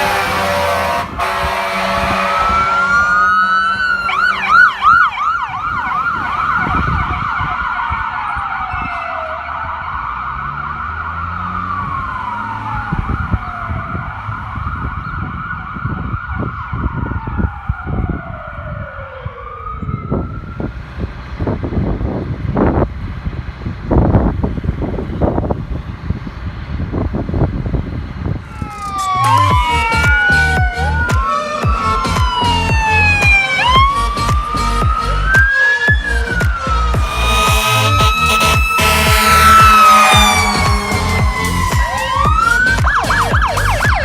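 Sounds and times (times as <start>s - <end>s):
steady siren tone: 0.0s - 20.8s, 28.4s - 44.0s
fire engine sirens wailing: 0.0s - 22.8s, 27.6s - 44.0s
low rumble with knocks: 36.0s - 44.0s.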